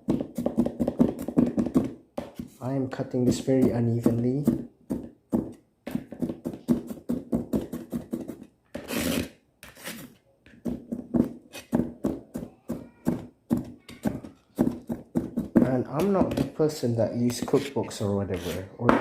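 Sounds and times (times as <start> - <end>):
knife chopping on cutting board: 0.0 - 2.6, 3.2 - 9.0, 10.6 - 16.5
knife scraping board: 7.7 - 10.2, 11.4 - 11.8, 17.3 - 18.8.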